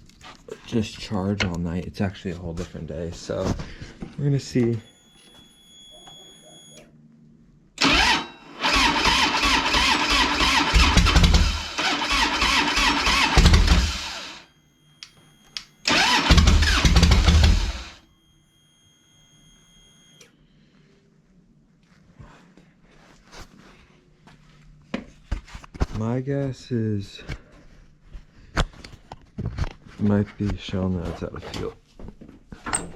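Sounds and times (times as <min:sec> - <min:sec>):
motorcycle starter cranking: 0:07.8 - 0:14.4, 0:15.8 - 0:18.0.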